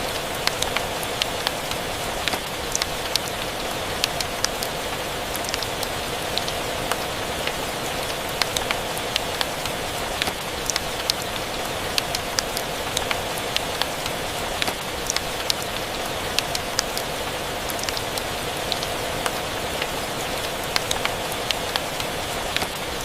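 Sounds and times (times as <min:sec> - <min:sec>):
steady rain: 0:00.0 - 0:23.0.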